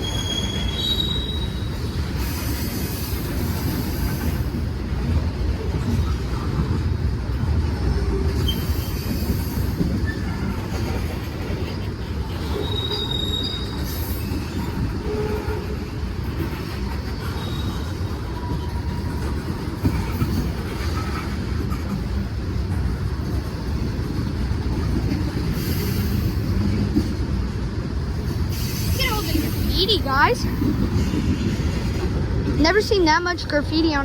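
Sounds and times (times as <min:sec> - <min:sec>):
faint wheel squeals: 0:00.0 - 0:02.4, 0:08.4 - 0:10.5, 0:12.4 - 0:15.6
train wheels rumbling on rail: 0:00.0 - 0:34.0.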